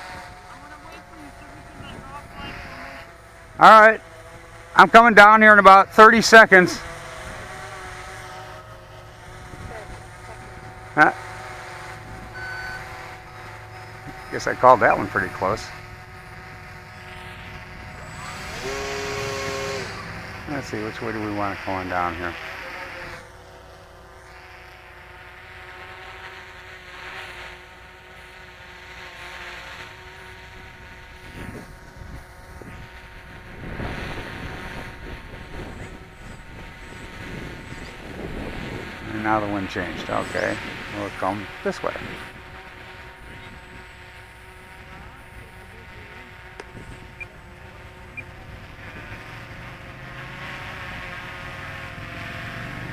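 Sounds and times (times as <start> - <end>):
model airplane motor whirring: 0.0 - 52.9
wind rumble on microphone: 1.4 - 2.9, 9.2 - 10.6, 30.7 - 39.1, 39.8 - 41.1, 41.9 - 44.0, 46.6 - 49.3.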